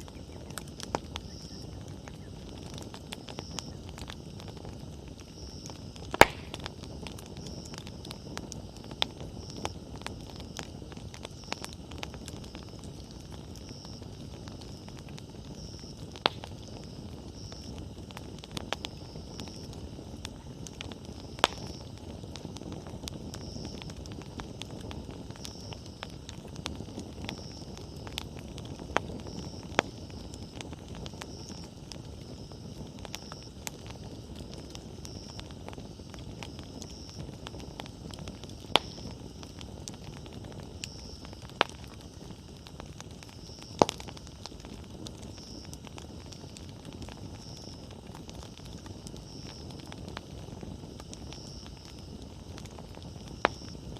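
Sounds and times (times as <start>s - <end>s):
bonfire flames crackling: 0.0s - 53.9s
burning wood popping: 0.0s - 53.9s
loud firewood pops: 5.5s - 6.8s, 16.1s - 16.5s, 20.8s - 21.8s.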